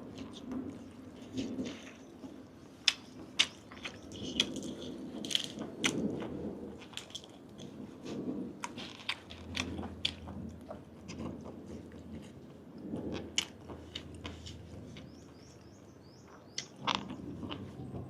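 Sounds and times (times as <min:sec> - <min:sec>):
person chewing: 0:00.1 - 0:12.4, 0:16.6 - 0:18.0.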